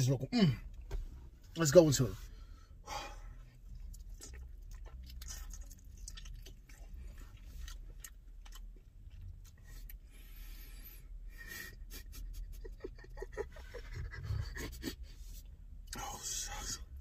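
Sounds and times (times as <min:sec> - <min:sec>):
low steady rumble: 0:00.0 - 0:17.0
person chewing and smacking: 0:03.6 - 0:10.0.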